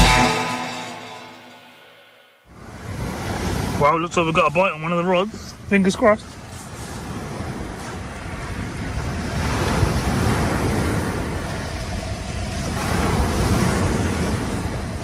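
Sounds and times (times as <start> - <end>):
surf washing onto shore: 2.5 - 15.0
wind buffeting microphone: 5.3 - 15.0.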